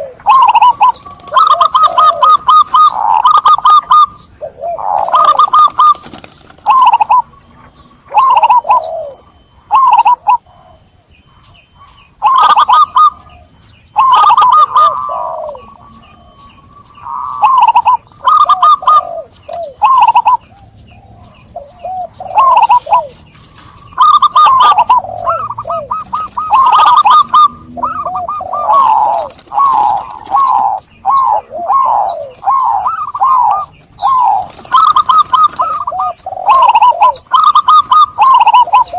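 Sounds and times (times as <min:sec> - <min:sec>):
dove cooing: 0:00.0 - 0:38.9
sharp bird chirps: 0:00.0 - 0:38.9.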